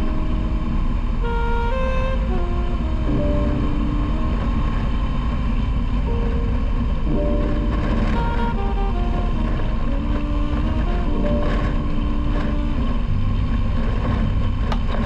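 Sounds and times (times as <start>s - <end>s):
background music: 0.0s - 15.0s
motorcycle engine and wind: 0.0s - 15.0s.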